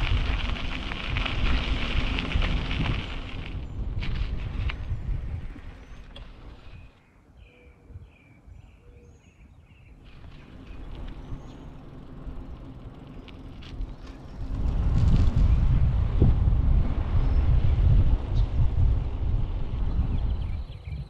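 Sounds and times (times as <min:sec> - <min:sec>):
wind rumbling on microphone: 0:00.0 - 0:21.0
bird chirps: 0:05.7 - 0:12.0, 0:20.1 - 0:21.0.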